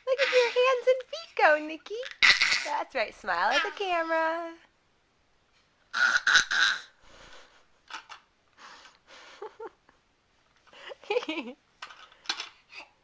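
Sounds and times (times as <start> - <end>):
baby grunting: 2.0 - 2.8, 5.9 - 6.9.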